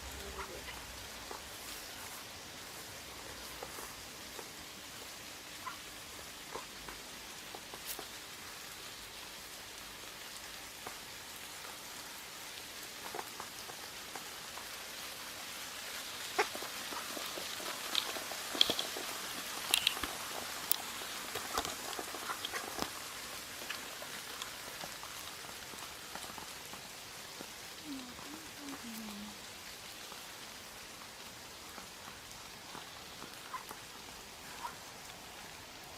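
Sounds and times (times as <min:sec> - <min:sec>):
rain hiss: 0:00.0 - 0:35.9
raindrops ticking: 0:00.0 - 0:35.9.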